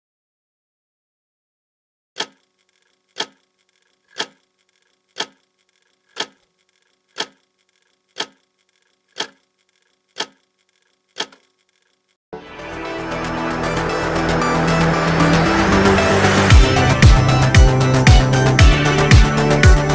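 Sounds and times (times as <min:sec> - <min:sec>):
clock ticking: 0:02.2 - 0:12.1.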